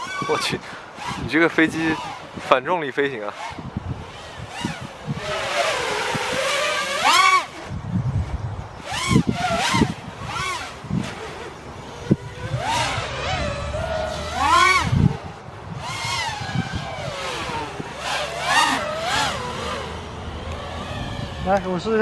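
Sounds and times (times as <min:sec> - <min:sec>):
quadcopter motors whining: 0:00.0 - 0:22.0.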